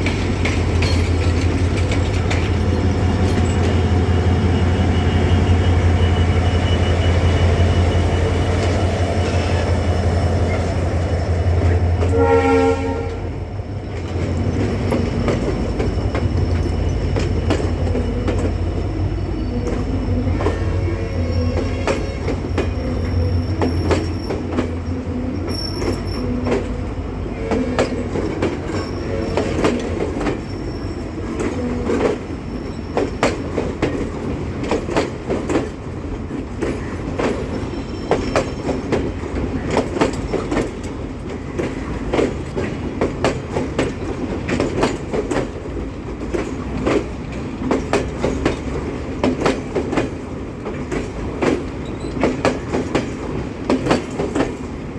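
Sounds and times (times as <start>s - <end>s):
wheels clattering over rail joints: 0.0s - 4.0s
train rumbling on track: 0.0s - 54.9s.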